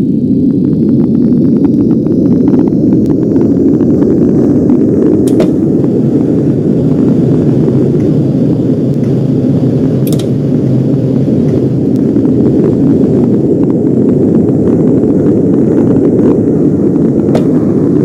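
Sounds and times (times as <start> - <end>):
train rumbling along track: 0.0 - 18.0
sharp clicks: 10.0 - 10.4.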